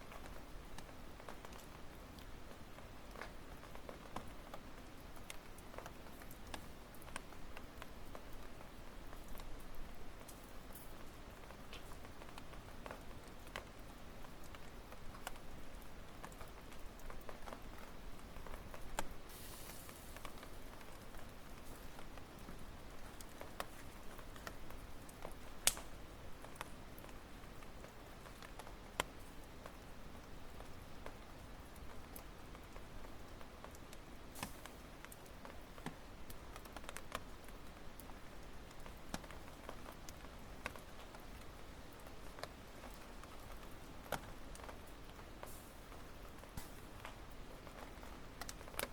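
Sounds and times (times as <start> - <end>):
campfire crackling and popping: 0.0 - 48.9
brief hiss: 19.3 - 20.3.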